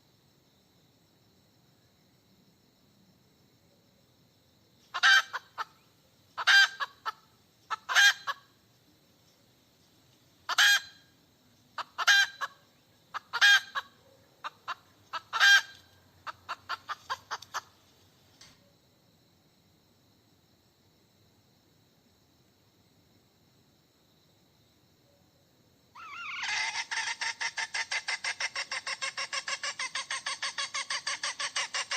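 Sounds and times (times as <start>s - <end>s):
hen cackling and clucking: 4.9s - 8.5s, 10.4s - 11.1s, 11.8s - 17.8s, 26.0s - 31.9s.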